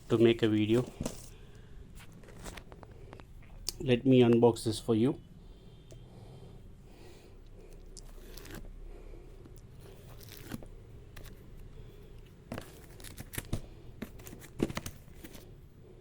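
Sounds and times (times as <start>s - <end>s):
packaging crackling and tearing: 8.0s - 8.7s, 9.9s - 11.5s, 12.5s - 15.4s.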